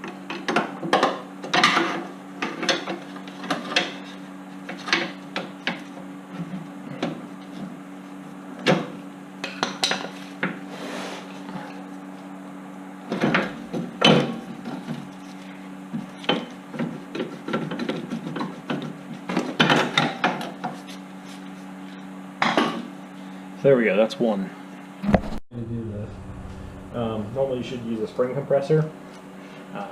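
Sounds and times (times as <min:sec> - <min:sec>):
steady low hum: 0:10.2 - 0:17.2, 0:24.4 - 0:29.9.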